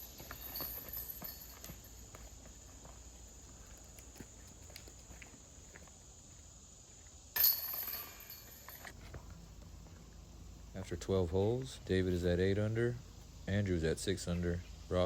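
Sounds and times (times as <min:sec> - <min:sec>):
metallic chain clatter: 0:00.0 - 0:02.4, 0:07.4 - 0:08.9.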